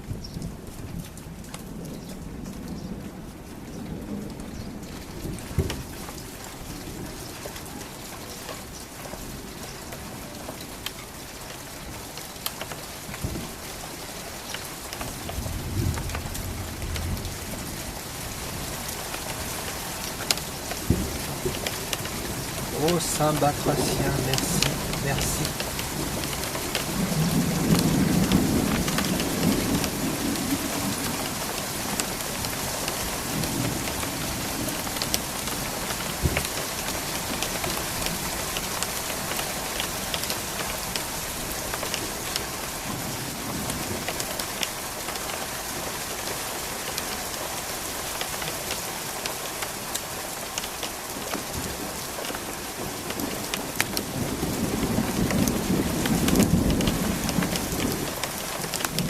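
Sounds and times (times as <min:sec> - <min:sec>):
rain on hard surfaces: 0:00.0 - 0:59.0
thunder rumbling: 0:20.8 - 0:34.8.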